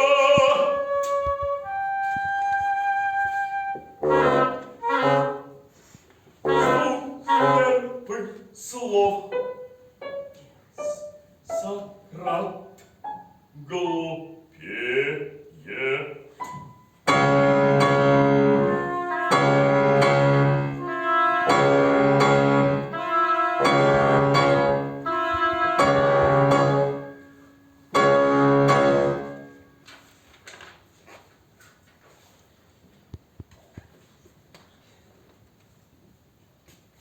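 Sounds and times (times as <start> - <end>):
chamber ensemble playing held chords: 4.0 - 5.6, 6.5 - 8.0, 17.1 - 27.3, 27.9 - 29.6.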